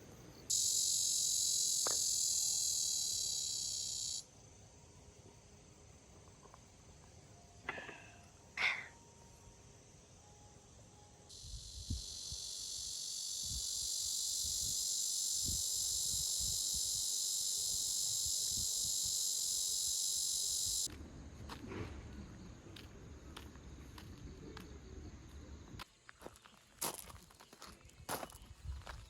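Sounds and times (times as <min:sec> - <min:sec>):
cicada buzzing: 0:00.5 - 0:04.4, 0:11.3 - 0:20.9.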